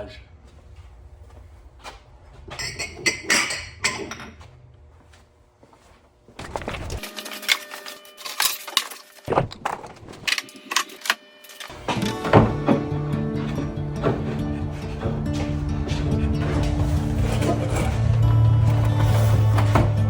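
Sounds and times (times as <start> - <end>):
music: 10.4 - 20.0.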